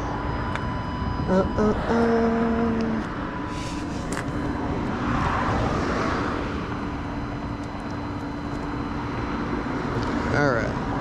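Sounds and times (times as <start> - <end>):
engine hum: 0.0 - 11.0
vehicle passing by: 3.8 - 7.0.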